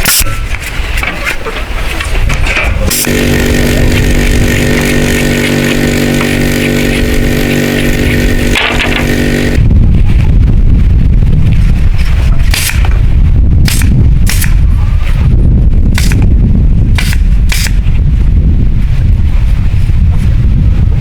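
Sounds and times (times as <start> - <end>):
rough low rumble: 2.8 - 21.0
small engine running: 2.9 - 9.6, 16.0 - 16.2, 17.0 - 17.8.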